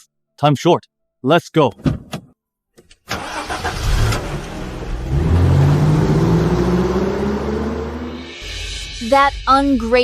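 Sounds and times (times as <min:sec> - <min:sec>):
car engine starting and revving: 0:03.1 - 0:08.9.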